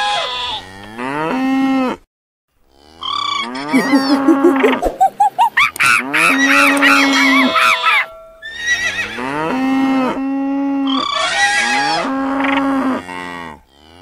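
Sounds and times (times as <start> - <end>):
short rising squeaks: 3.8 - 5.7
cow mooing: 6.0 - 14.0.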